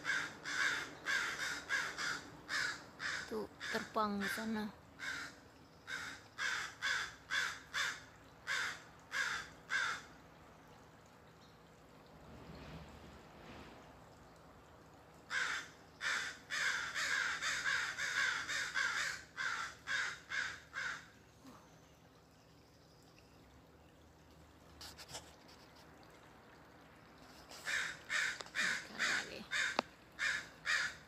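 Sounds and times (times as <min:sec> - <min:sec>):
crows cawing: 0:00.0 - 0:03.9, 0:05.0 - 0:10.1, 0:15.3 - 0:21.2, 0:27.6 - 0:31.0.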